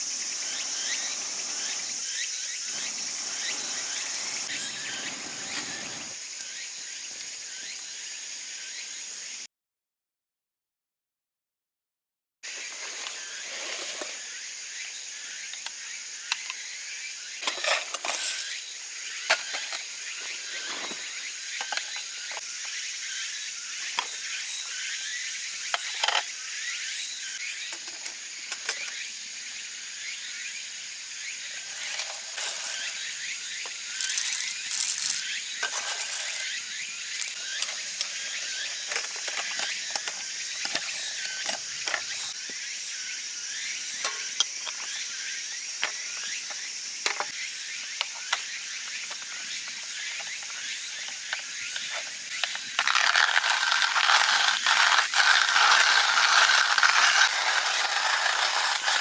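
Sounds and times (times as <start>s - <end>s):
steady hiss: 0.0s - 6.3s.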